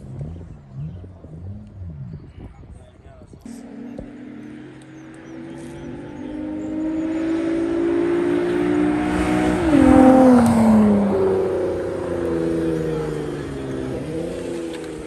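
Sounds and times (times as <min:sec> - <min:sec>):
race car accelerating past: 0:03.5 - 0:15.0.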